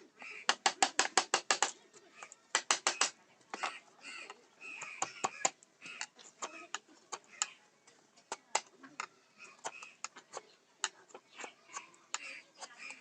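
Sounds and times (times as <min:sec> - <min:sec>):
mallet tapping chisel into wood: 0:00.5 - 0:01.7, 0:02.5 - 0:03.2.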